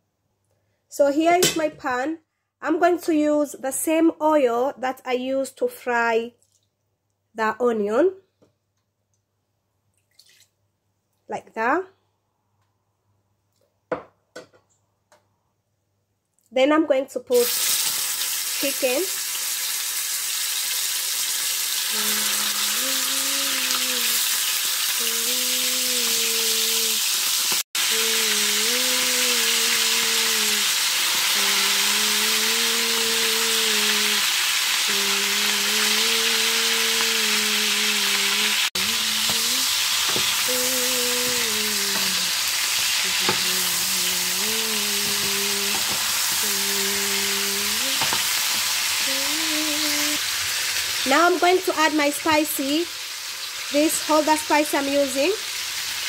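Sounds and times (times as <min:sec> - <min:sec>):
chicken sizzling in hot oil: 0:17.3 - 0:56.0
person humming a tune: 0:21.9 - 0:24.2, 0:25.0 - 0:27.0, 0:27.9 - 0:30.7, 0:31.4 - 0:34.3, 0:34.9 - 0:39.8, 0:40.4 - 0:42.4, 0:43.0 - 0:48.1, 0:49.0 - 0:50.2.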